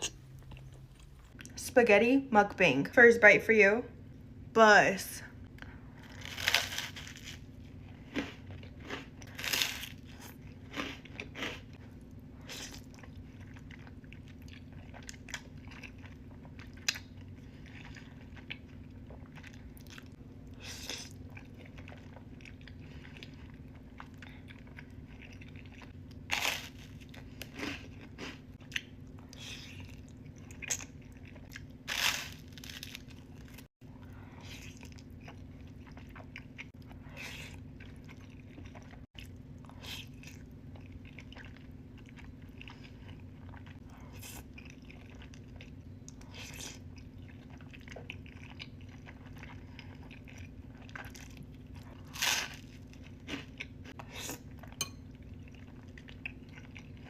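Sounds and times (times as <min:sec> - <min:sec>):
low hum: 0:00.0 - 0:57.0
person biting and chewing food: 0:06.0 - 0:11.8, 0:23.7 - 0:33.7, 0:43.5 - 0:55.0.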